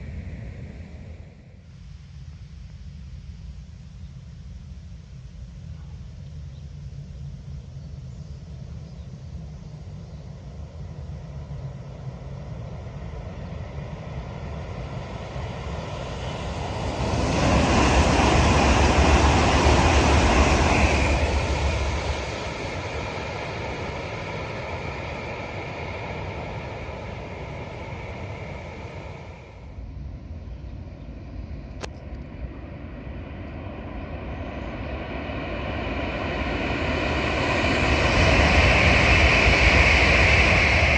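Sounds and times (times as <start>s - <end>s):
high-speed train passing: 0.0s - 1.8s, 9.3s - 40.9s.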